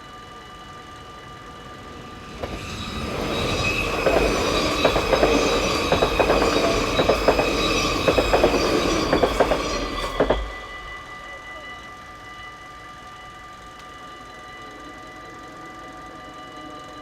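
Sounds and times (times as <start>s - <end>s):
high metallic wheel whine: 0.0s - 17.0s
train rumbling: 0.8s - 12.3s
wheels clacking over rail joints: 2.4s - 10.9s.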